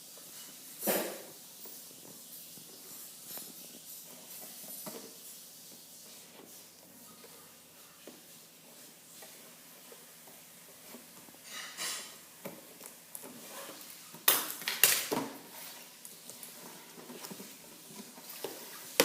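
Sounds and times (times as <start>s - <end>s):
plastic packaging rustling: 12.6s - 19.0s.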